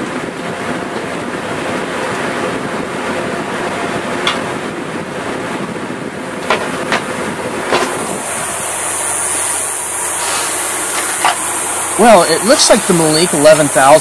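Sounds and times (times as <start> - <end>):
high hiss: 8.0 - 14.0.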